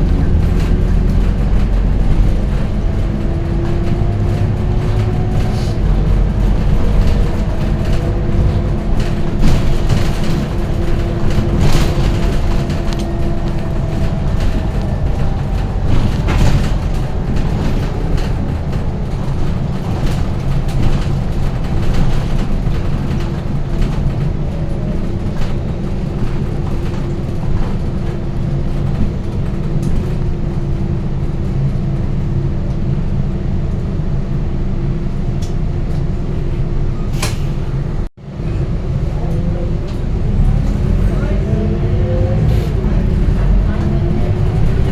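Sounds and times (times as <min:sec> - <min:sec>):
bus body rattling: 0:00.0 - 0:44.9
diesel bus engine drone: 0:00.0 - 0:44.9
engine whine: 0:00.0 - 0:44.9.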